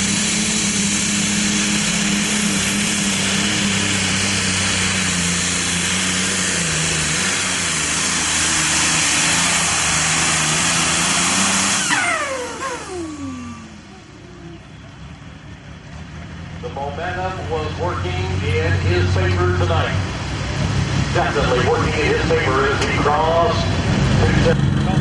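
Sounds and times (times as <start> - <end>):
tractor engine running flat out: 0.0 - 25.0
high whine falling in pitch: 11.8 - 14.2, 23.6 - 25.0.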